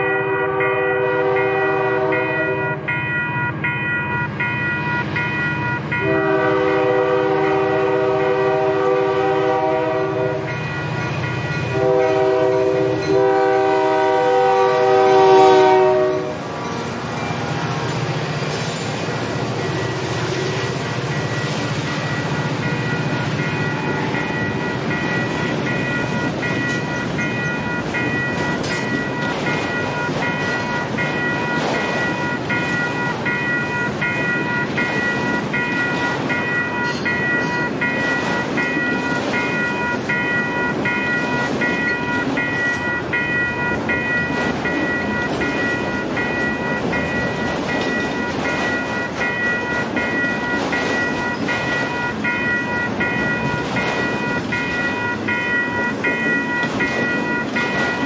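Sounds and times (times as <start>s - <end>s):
rumble of wheels on rail: 0.0s - 58.0s
repeating ringing tone: 19.6s - 58.0s.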